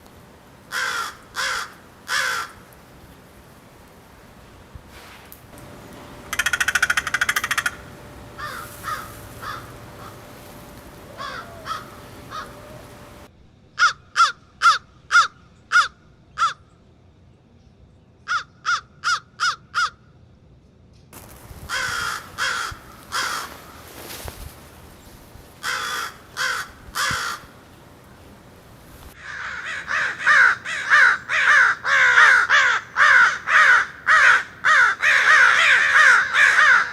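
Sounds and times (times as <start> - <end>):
crows cawing: 0.7 - 2.7, 6.2 - 16.6, 18.3 - 20.0, 21.7 - 24.2, 25.6 - 27.6, 29.2 - 36.9.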